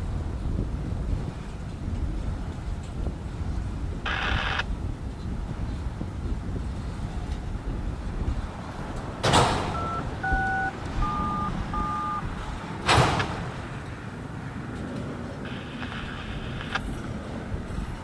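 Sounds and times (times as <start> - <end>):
radio static bursts: 4.1 - 4.6, 15.5 - 16.9
touch-tone beeps: 9.4 - 12.3
steady low rumble: 15.3 - 18.0.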